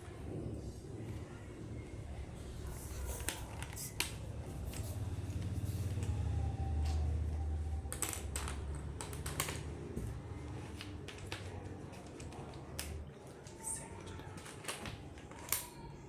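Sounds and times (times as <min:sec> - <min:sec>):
small hard objects clicking: 0:07.9 - 0:09.8.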